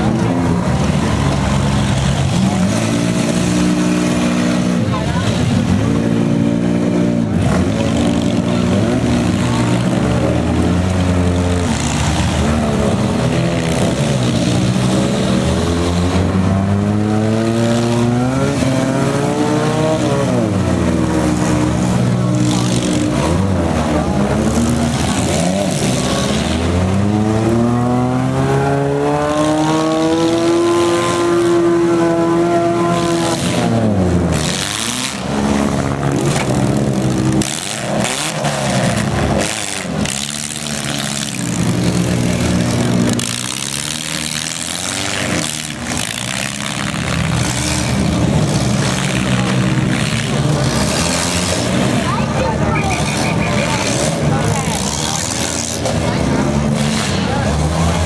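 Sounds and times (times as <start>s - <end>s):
car engines revving hard: 0.0s - 58.0s.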